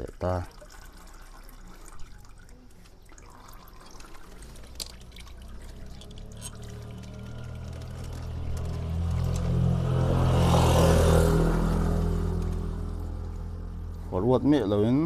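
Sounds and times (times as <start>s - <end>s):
oil dripping into a pan: 0.0s - 9.6s.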